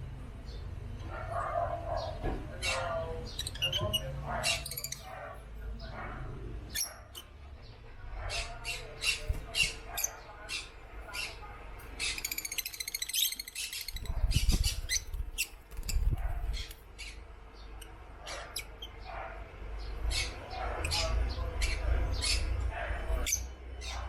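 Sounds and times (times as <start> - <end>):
birds chirping: 0.0 - 24.0
bird chattering trill: 2.7 - 5.2, 12.0 - 17.2.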